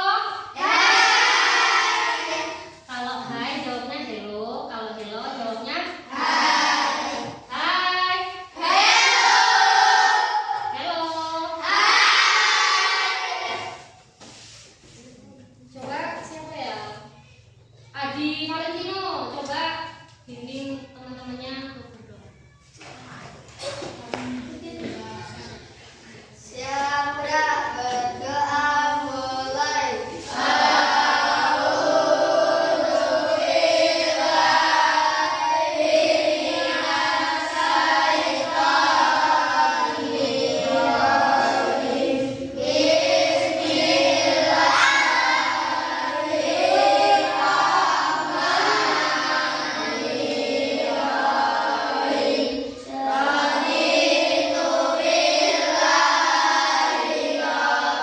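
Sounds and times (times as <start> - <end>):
children singing in unison: 0.0 - 2.9, 6.1 - 7.5, 8.2 - 10.8, 11.5 - 14.0, 26.4 - 58.0.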